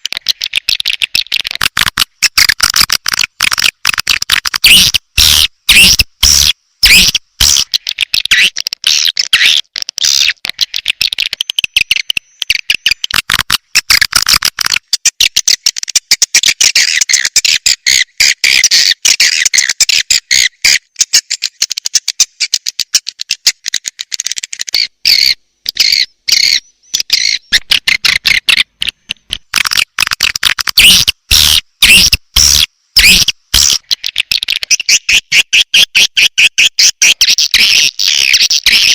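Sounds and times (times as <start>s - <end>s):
swiftlets chirping and twittering: 24.7s - 28.6s.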